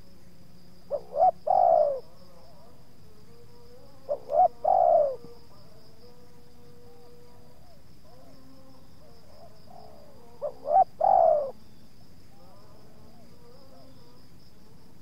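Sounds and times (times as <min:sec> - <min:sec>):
high insect trill: 0:00.0 - 0:15.0
dove cooing: 0:00.9 - 0:02.7, 0:04.0 - 0:05.3, 0:09.2 - 0:11.6.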